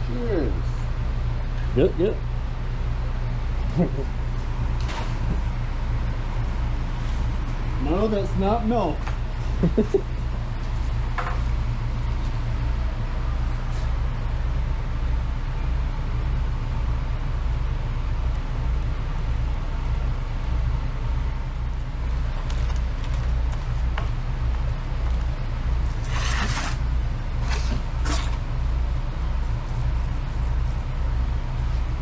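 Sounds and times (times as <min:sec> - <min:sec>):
low mechanical hum: 0:00.0 - 0:32.0
scraping or rustling: 0:25.9 - 0:28.6.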